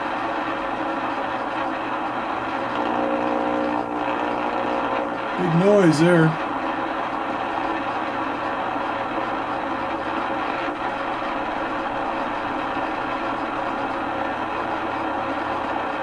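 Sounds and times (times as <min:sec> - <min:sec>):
radio static: 0:03.1 - 0:06.4.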